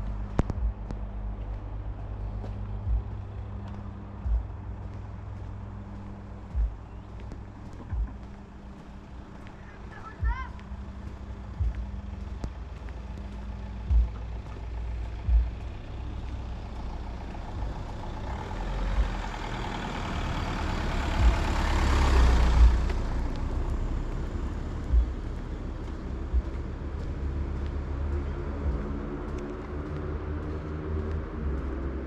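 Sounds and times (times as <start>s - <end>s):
short low thumps: 0.0s - 8.4s, 10.2s - 16.8s, 21.2s - 21.6s, 22.4s - 27.9s
low rumble: 0.0s - 32.0s
truck passing by: 0.0s - 32.0s.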